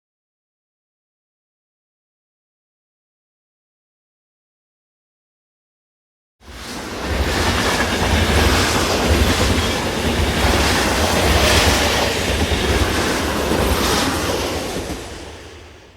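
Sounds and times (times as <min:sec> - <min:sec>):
train rolling on rails: 0:06.4 - 0:15.9.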